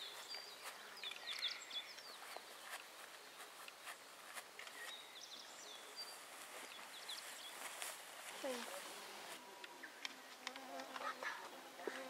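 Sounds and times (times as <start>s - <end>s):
bird chirping: 0.0s - 8.6s
faint outdoor ambience: 0.0s - 12.0s.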